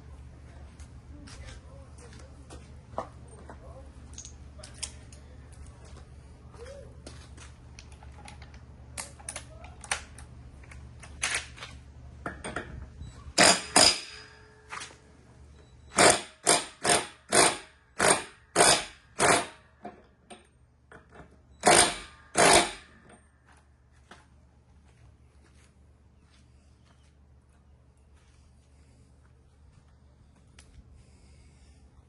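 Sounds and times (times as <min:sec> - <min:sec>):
short loud tool strokes: 0:13.4 - 0:14.9, 0:15.9 - 0:19.6, 0:21.6 - 0:23.0.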